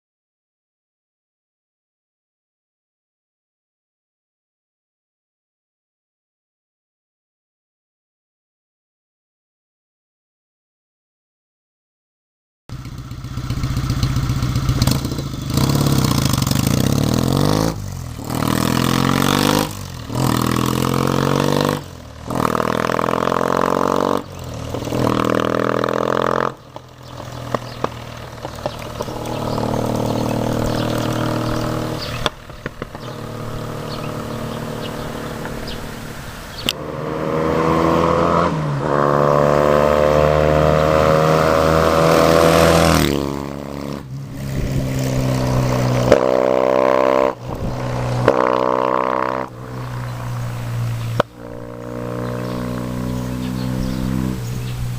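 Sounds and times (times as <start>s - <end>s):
motorcycle engine accelerating: 12.7s - 54.9s.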